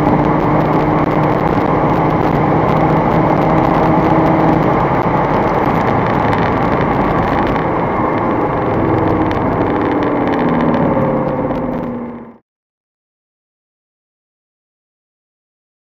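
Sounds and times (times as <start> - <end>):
car engine driving: 0.0 - 12.4
road and wind noise: 0.0 - 12.4.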